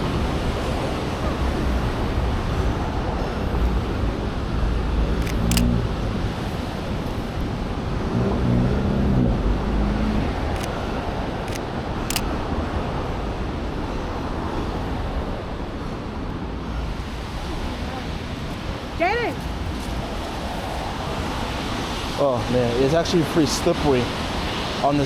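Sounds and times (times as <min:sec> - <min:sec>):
short sharp clicks: 0:05.2 - 0:05.8, 0:10.6 - 0:10.9, 0:11.5 - 0:12.3.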